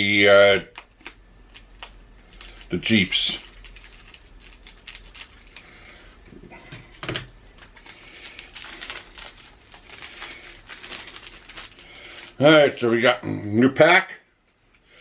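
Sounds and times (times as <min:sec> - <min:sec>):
cards clicking and rustling: 0:00.7 - 0:06.1, 0:06.7 - 0:12.4.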